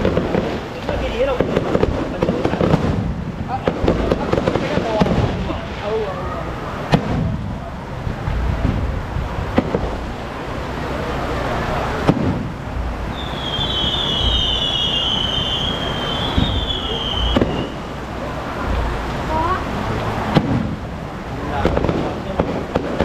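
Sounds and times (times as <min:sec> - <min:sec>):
firework bangs: 0:00.0 - 0:23.0
fireworks crackling: 0:00.0 - 0:23.0
high falling whistle: 0:13.1 - 0:17.9.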